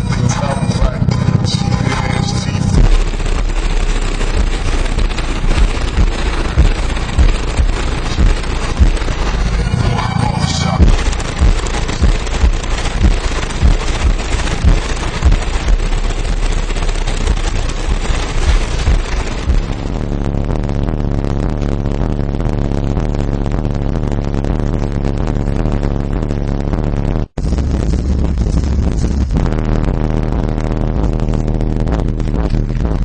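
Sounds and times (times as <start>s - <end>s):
subwoofer playing hip-hop bass: 0.0s - 33.0s.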